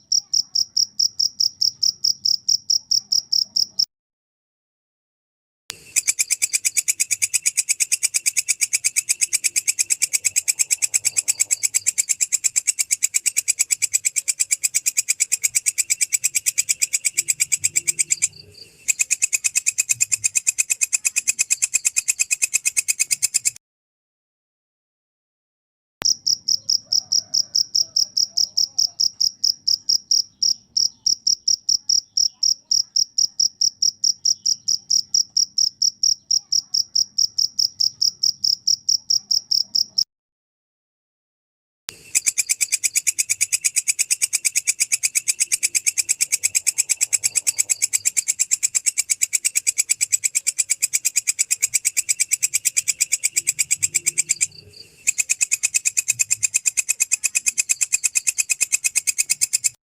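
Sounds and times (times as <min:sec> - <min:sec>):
cricket chirping: 0:00.0 - 0:03.9, 0:05.7 - 0:23.6, 0:26.0 - 0:40.0, 0:41.9 - 0:59.8
katydid rapid pulsing call: 0:05.8 - 0:23.6, 0:42.0 - 0:59.8.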